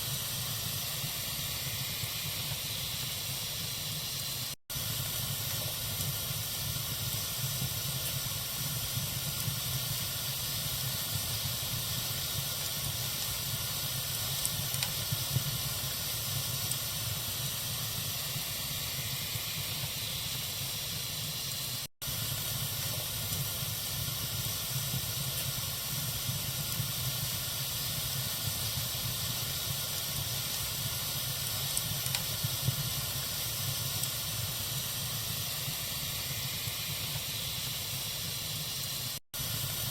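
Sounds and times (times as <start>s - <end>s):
bonfire hissing and crackling: 0.0s - 39.9s.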